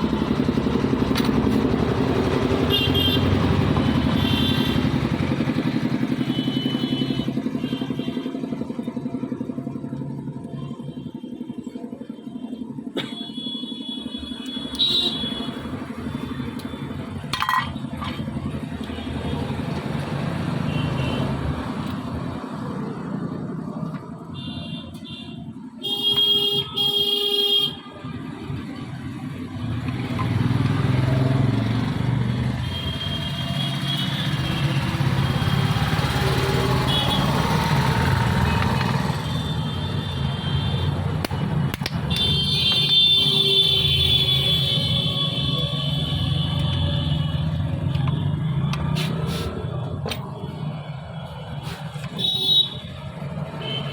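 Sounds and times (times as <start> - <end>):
road traffic: 0.0 - 53.9
vehicle horns honking: 2.3 - 5.2, 5.8 - 8.5, 13.0 - 15.9, 24.3 - 28.0, 32.6 - 35.4, 36.1 - 49.6, 51.6 - 53.9.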